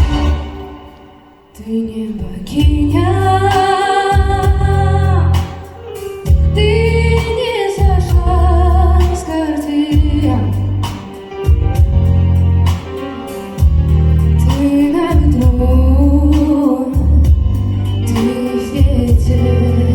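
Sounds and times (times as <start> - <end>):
backing track with strong bass: 0.0 - 1.3, 2.6 - 19.9
woman singing slow song: 1.5 - 11.0, 14.4 - 19.9.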